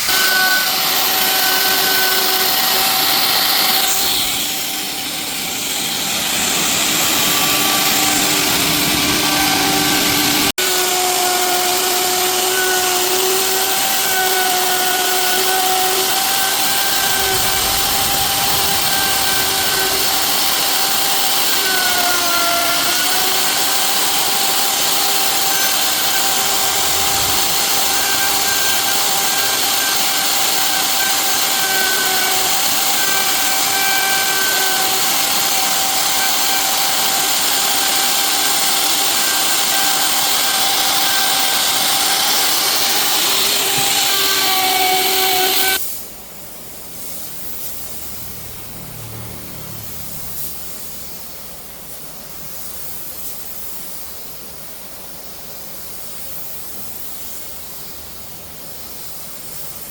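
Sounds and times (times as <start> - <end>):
wood-processing machinery whine: 0.0 - 45.8
hiss: 0.0 - 48.3, 49.8 - 59.9.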